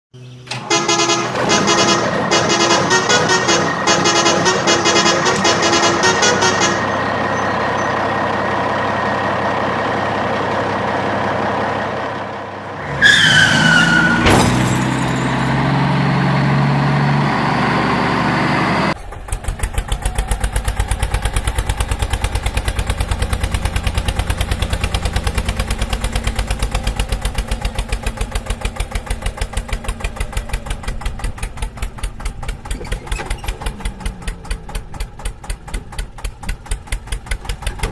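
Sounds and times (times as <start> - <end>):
engine and horn-like drone: 0.2 - 19.0
diesel engine chugging: 0.2 - 37.9.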